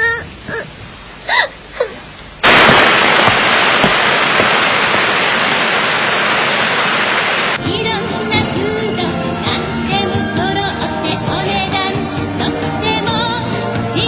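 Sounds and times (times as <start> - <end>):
loud rushing hiss: 2.4 - 7.6.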